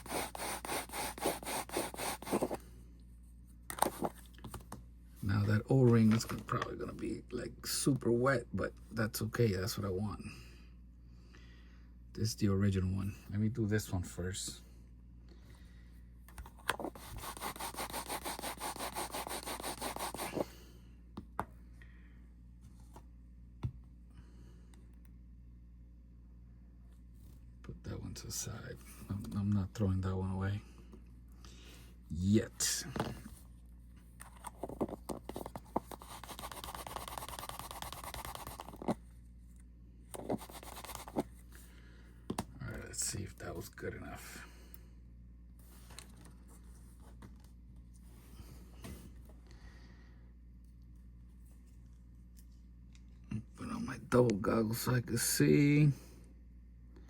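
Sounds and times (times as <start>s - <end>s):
rapid fine scratching: 0.0s - 2.6s, 16.9s - 20.4s, 35.3s - 39.0s, 40.2s - 41.3s
rubbing of small watch part: 0.0s - 2.6s, 16.8s - 20.4s, 34.2s - 39.0s, 40.2s - 41.3s.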